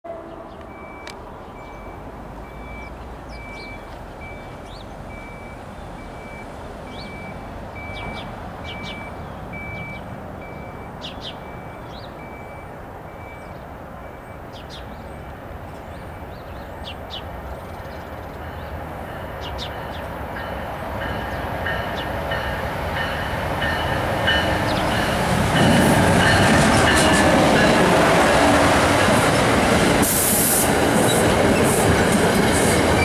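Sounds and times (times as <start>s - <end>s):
birds chirping: 0.1s - 12.6s, 13.2s - 30.0s
distant train rumble: 0.1s - 33.0s
faint electronic beep: 0.7s - 14.5s.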